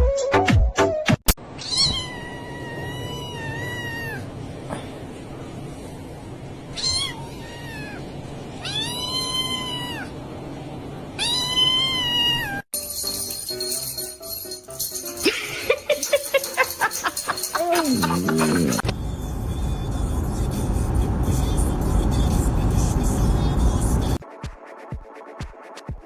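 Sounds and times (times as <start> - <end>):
cat meowing: 1.6 - 4.3, 6.7 - 10.2, 11.2 - 12.6.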